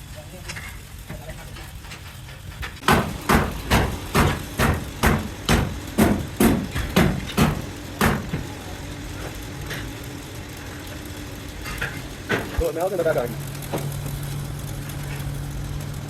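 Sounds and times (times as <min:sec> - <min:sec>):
hammer striking: 0:02.8 - 0:08.5
low machine hum: 0:02.8 - 0:16.0.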